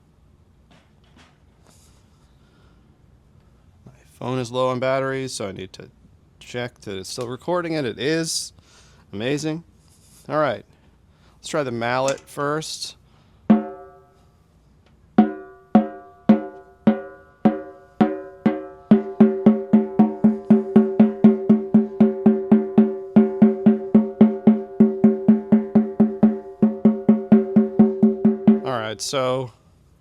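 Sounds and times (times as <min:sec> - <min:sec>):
snare drum struck with mallet: 0:13.5 - 0:13.9, 0:15.2 - 0:28.8.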